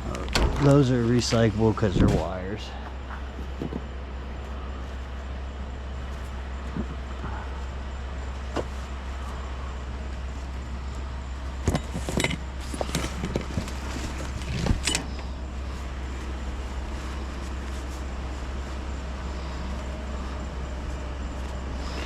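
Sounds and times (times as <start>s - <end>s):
steady low hum: 0.0s - 22.0s
items clattering and rattling: 11.6s - 15.3s.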